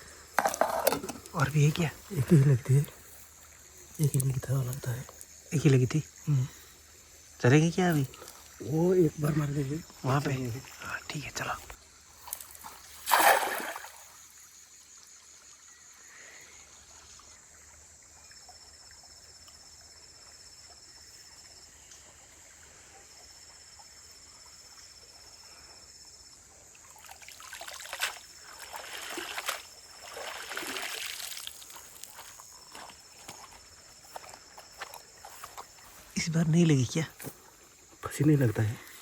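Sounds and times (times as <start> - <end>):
creek trickling: 0.0 - 39.0
net splashing into water: 12.3 - 14.2, 26.9 - 31.8
net sloshing through water: 12.4 - 14.2, 27.0 - 32.2.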